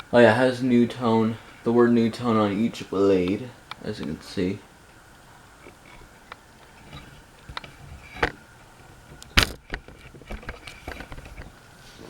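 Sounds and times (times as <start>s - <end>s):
faint steady hum: 0.0s - 12.0s
scattered clicks and knocks: 5.6s - 11.6s.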